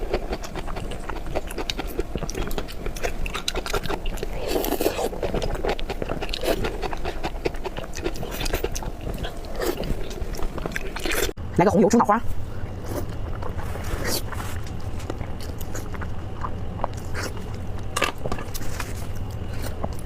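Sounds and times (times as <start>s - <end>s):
wet chewing and smacking: 0.0s - 11.4s, 12.7s - 20.0s.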